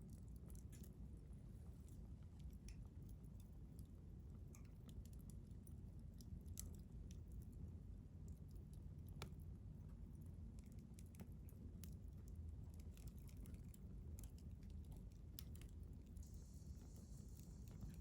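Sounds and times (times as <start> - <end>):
faint hiss: 15.9 - 18.0.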